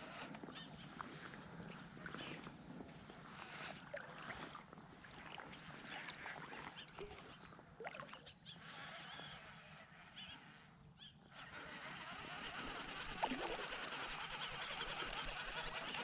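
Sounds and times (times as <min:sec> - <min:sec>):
faint bird calls: 0:00.0 - 0:02.5, 0:06.0 - 0:16.0
water sloshing and splashing: 0:03.7 - 0:08.3, 0:13.0 - 0:16.0.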